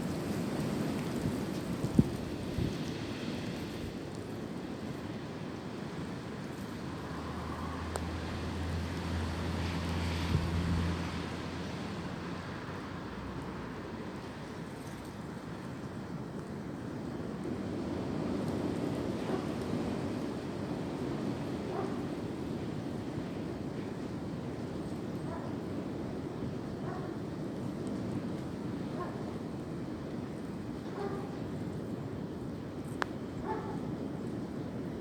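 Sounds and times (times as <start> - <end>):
wind through tree branches: 0.0 - 35.0
low engine hum: 6.6 - 14.4.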